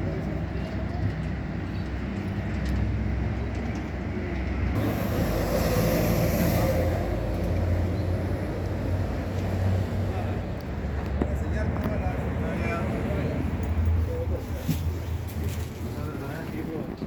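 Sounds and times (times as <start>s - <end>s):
bus diesel engine running: 0.0s - 17.0s
air hiss: 4.8s - 7.5s.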